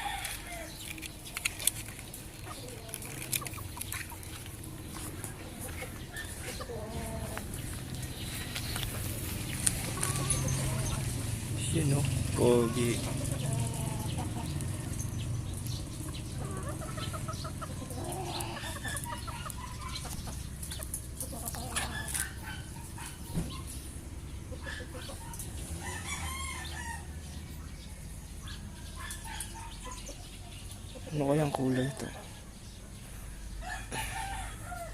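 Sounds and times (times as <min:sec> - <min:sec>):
rooster crowing: 0:00.0 - 0:00.8, 0:25.8 - 0:27.1, 0:33.6 - 0:34.9
chickens clucking: 0:00.0 - 0:34.9.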